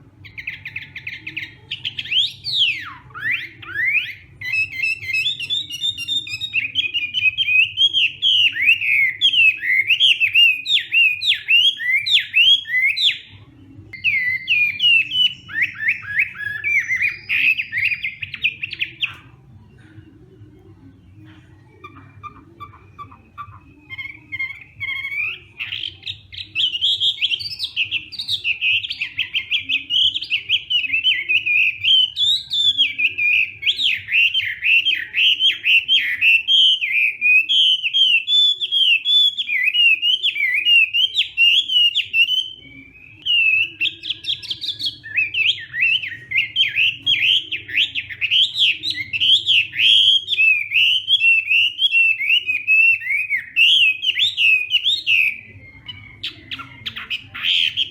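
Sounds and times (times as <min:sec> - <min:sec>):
songbird whistling song: 0:00.0 - 0:57.9.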